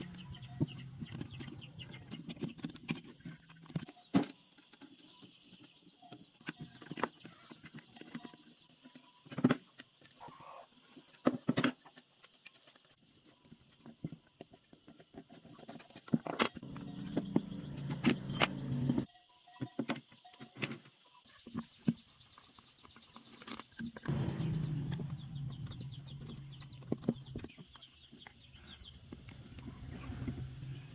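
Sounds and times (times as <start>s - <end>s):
metallic clinks and knocks: 15.1s - 21.0s, 22.8s - 29.6s.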